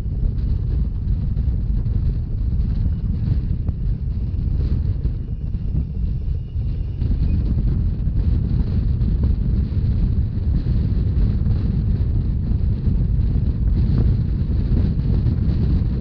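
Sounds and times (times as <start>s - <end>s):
train rumbling at speed: 0.0s - 16.0s
wind buffeting microphone: 0.0s - 16.0s.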